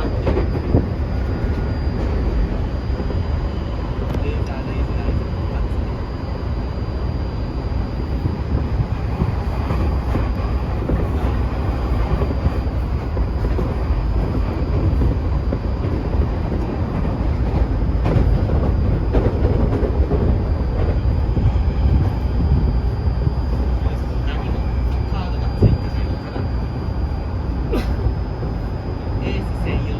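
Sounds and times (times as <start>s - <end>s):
train wheels rumbling on rail: 0.0s - 29.9s
rail-joint clicks: 9.1s - 22.5s, 23.5s - 26.5s.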